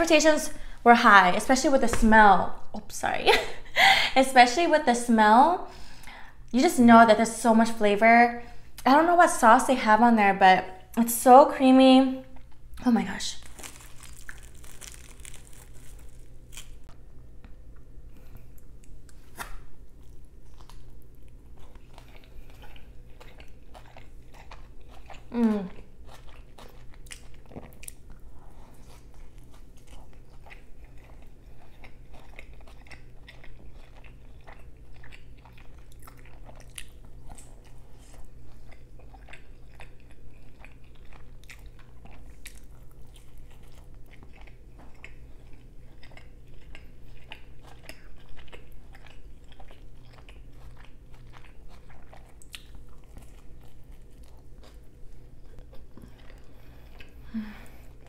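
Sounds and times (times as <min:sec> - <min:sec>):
chewing and biting food: 0:13.4 - 0:58.0.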